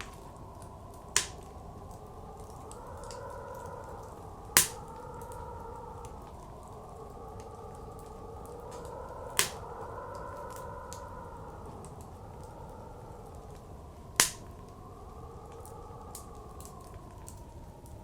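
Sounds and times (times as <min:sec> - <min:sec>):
blizzard wind blowing: 0:00.0 - 0:18.0
wood fire crackling: 0:00.0 - 0:18.0
loud sharp pops of fire: 0:01.1 - 0:01.6, 0:04.5 - 0:04.9, 0:08.8 - 0:09.6, 0:14.2 - 0:14.6.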